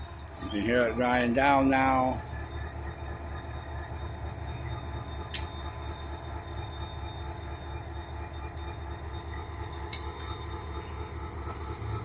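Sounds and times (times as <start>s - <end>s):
freight train rumbling past: 0.0s - 12.0s
sharp click: 5.3s - 5.5s.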